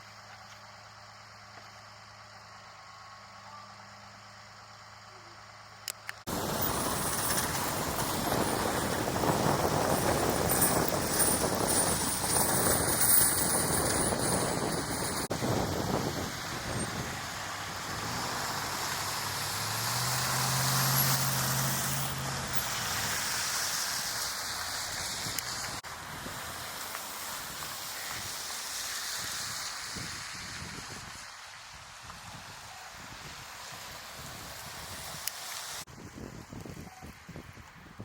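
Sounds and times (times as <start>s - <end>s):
low engine hum: 0.0s - 26.5s
road traffic rushing: 0.0s - 35.9s.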